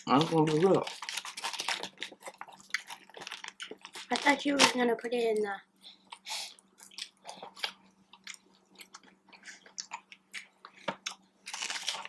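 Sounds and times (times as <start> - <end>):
wet chewing smacks and clicks: 6.8 - 11.2.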